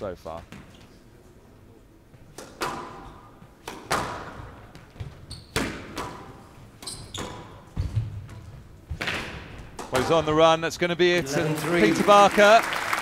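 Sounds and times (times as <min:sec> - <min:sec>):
squash ball impacts: 0:02.3 - 0:10.4
shoe squeaks on floor: 0:05.0 - 0:05.7, 0:06.8 - 0:08.1.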